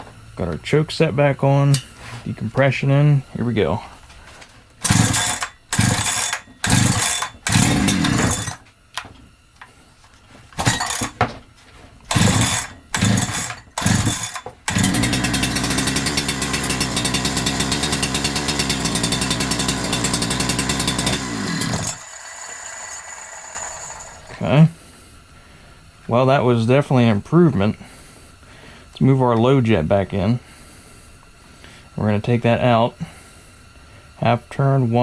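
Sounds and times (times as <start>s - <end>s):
chainsaw starter rope pulls: 4.8s - 8.6s, 10.6s - 11.2s, 12.1s - 24.6s
chainsaw engine running: 4.8s - 8.7s, 10.6s - 11.3s, 12.1s - 24.9s.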